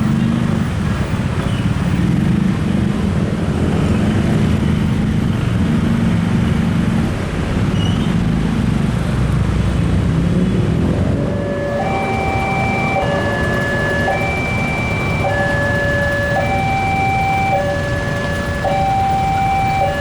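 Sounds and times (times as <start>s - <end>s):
train rumbling past: 9.8s - 20.0s.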